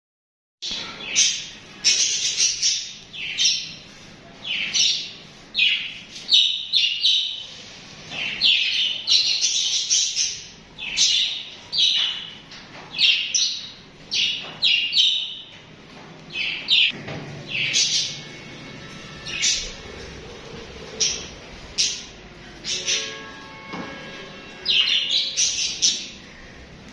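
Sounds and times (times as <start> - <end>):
budgerigars chirping: 13.0 - 15.5, 16.4 - 18.3, 19.2 - 20.0.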